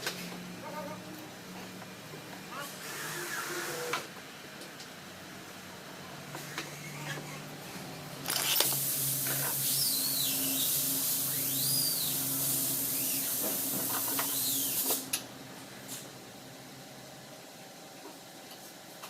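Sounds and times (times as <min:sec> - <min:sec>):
pressurised spray hissing: 0:08.6 - 0:15.1.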